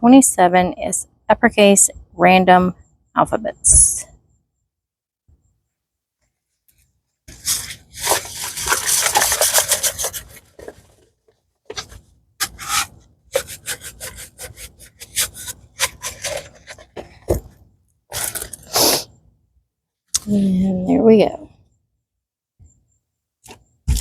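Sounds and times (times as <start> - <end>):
scraping strokes: 7.3 - 11.0, 11.7 - 17.3.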